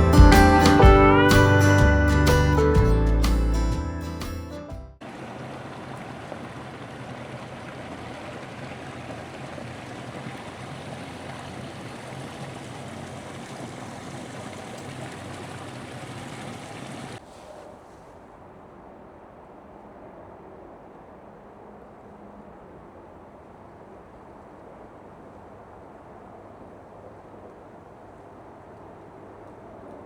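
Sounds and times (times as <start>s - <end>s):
quiet outdoor background: 0.0s - 30.0s
water rushing: 5.0s - 17.5s.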